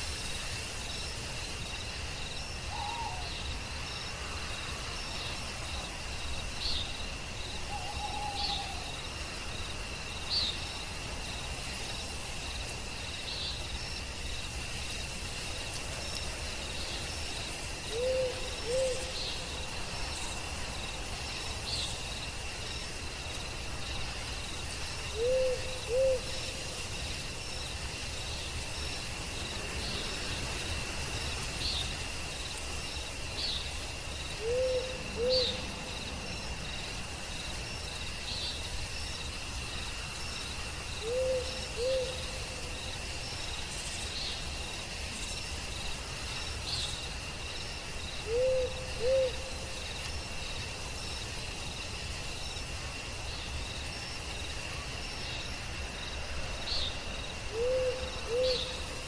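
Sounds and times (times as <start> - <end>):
crickets trilling: 0.0 - 59.0
owl hooting: 2.7 - 3.3, 7.7 - 8.9, 17.9 - 19.1, 25.2 - 26.3, 34.4 - 35.6, 41.0 - 42.3, 48.2 - 49.4, 57.5 - 58.8.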